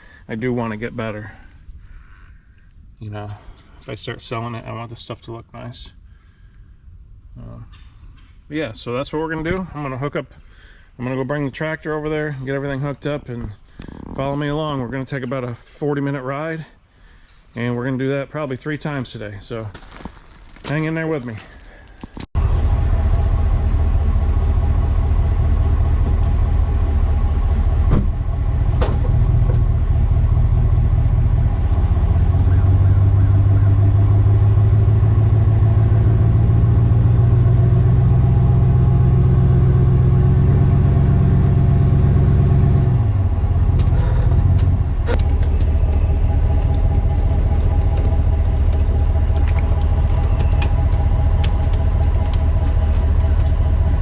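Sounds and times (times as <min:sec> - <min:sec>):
vehicle engine running: 0:22.4 - 0:54.0.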